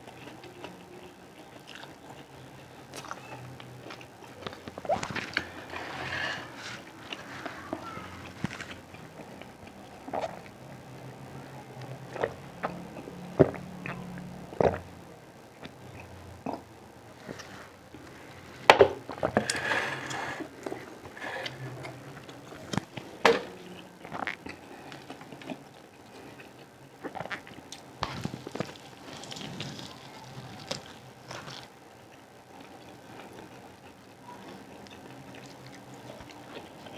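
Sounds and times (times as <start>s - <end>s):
chewing with wet mouth clicks: 0.1s - 5.4s, 34.8s - 36.9s.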